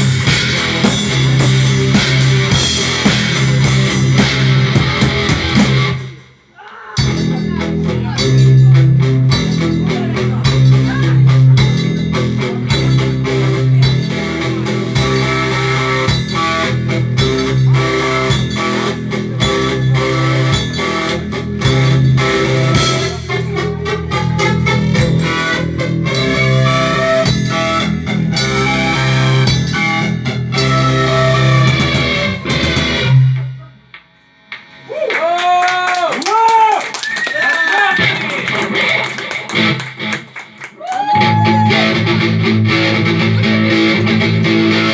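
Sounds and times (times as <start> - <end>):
drum beat: 0.0 - 12.1, 33.9 - 41.7
bass line: 0.0 - 35.6, 37.8 - 44.9
guitar: 0.0 - 36.2, 36.8 - 44.9.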